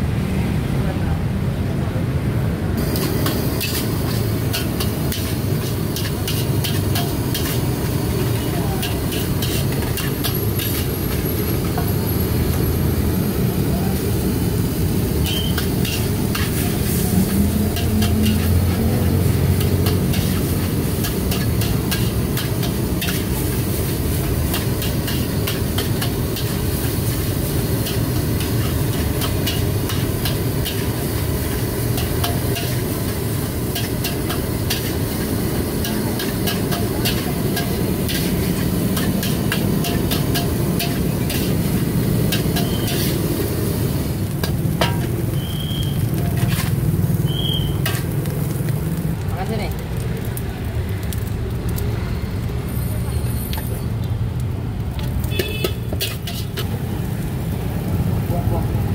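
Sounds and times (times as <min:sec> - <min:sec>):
rice sizzling in a wok: 0:02.6 - 0:58.9
metal spatula scraping pan: 0:42.3 - 0:43.2, 0:55.6 - 0:56.7.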